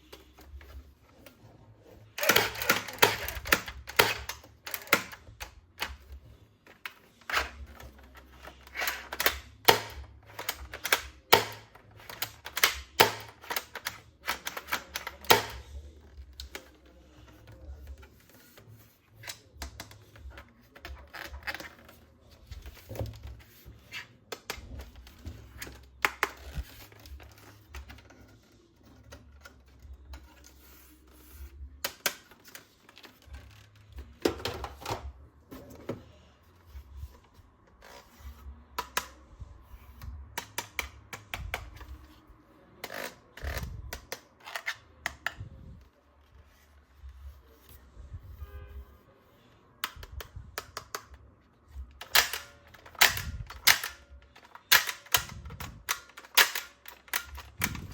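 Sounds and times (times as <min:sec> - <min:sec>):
plastic toys and packaging handled: 0:00.0 - 0:57.9.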